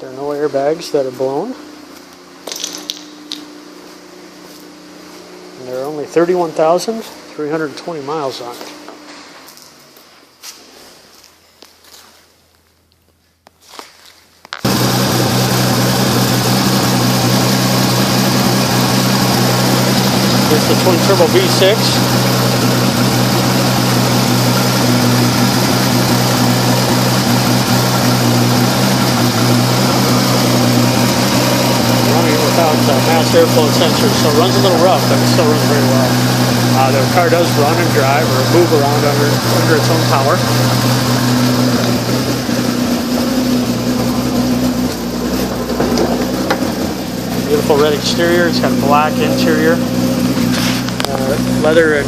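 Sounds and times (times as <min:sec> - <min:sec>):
car engine idling rough: 0:14.6 - 0:52.0.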